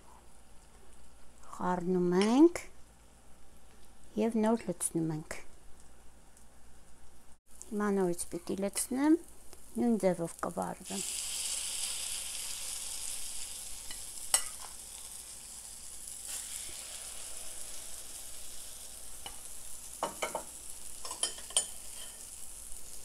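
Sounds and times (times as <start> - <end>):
batter sizzling in oil: 8.0 - 23.0
spoon clinking against pan: 20.0 - 22.2.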